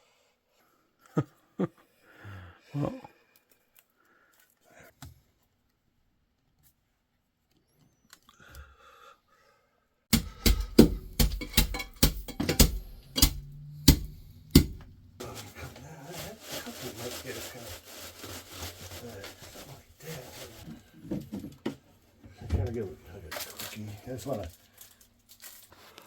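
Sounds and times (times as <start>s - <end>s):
loud sharp knocks: 10.1s - 15.0s
saw cutting plastic pipe: 10.1s - 15.4s.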